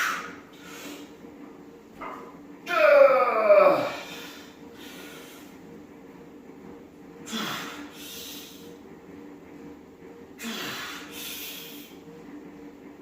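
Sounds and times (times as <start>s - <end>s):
man breathing hard: 3.9s - 5.6s, 7.2s - 8.7s, 10.4s - 12.0s.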